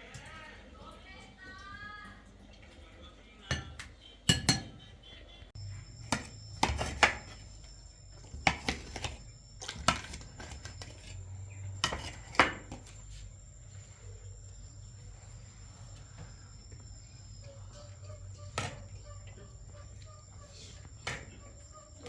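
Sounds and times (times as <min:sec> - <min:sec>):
dishes and utensils clinking: 0:03.5 - 0:04.9, 0:06.0 - 0:13.0
low hum: 0:05.6 - 0:22.0
thin high tone: 0:05.6 - 0:22.0.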